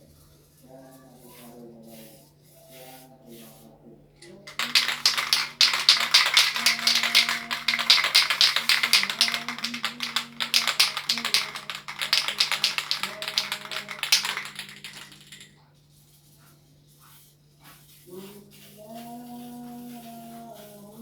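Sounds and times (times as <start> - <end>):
rapid light tapping: 4.5 - 15.5.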